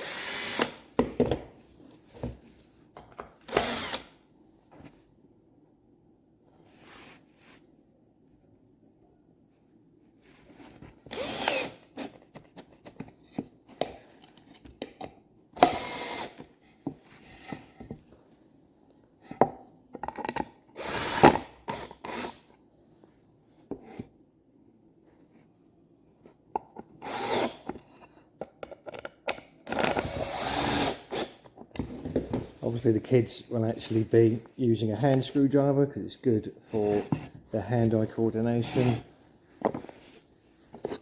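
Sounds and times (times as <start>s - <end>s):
cordless drill driving screws: 0.0s - 0.8s, 3.5s - 4.2s, 11.1s - 11.9s, 15.6s - 16.4s, 20.8s - 22.4s, 27.0s - 27.6s, 29.7s - 31.4s.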